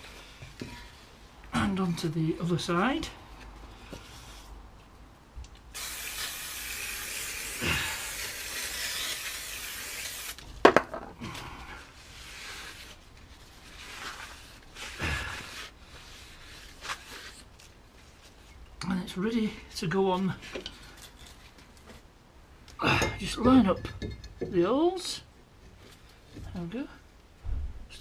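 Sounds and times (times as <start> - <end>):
aerosol spray hiss: 5.8 - 10.4.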